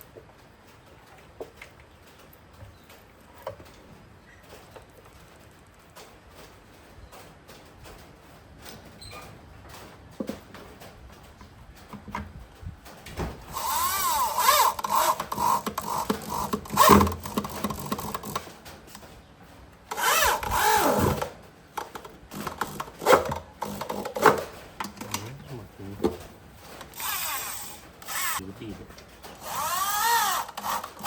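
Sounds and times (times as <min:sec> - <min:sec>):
power drill motor whine: 0:13.5 - 0:17.2, 0:19.9 - 0:21.2, 0:26.9 - 0:28.4, 0:29.4 - 0:31.0.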